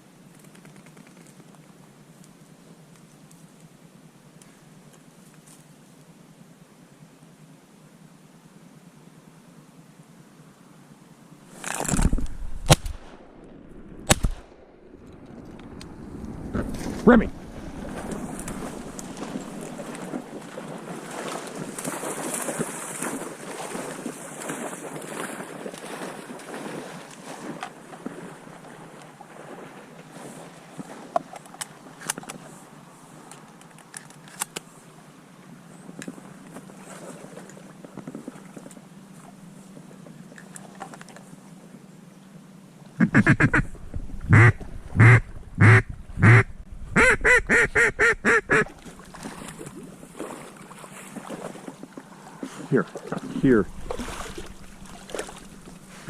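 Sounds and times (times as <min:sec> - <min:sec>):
water splashing and lapping: 0:11.5 - 0:34.7, 0:35.8 - 0:41.5, 0:43.1 - 0:56.0
duck call quacking: 0:43.0 - 0:43.7, 0:44.3 - 0:48.6.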